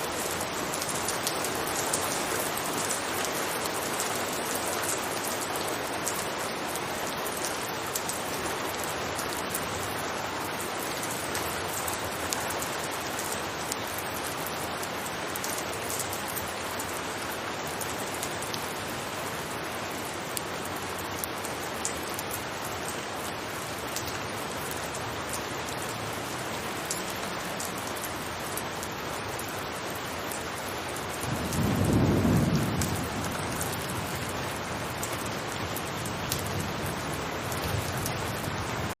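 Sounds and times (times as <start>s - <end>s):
rain falling on a roof: 0.0s - 39.0s
raindrop ticks: 0.0s - 39.0s
thunder rumbling: 31.2s - 38.9s.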